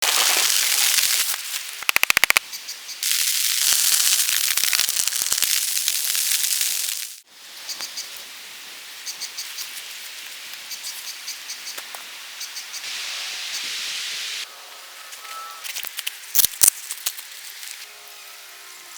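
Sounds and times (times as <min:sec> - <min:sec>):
rain falling: 0:00.0 - 0:02.4, 0:03.0 - 0:07.3
rattle of sharp clicks: 0:01.8 - 0:02.4.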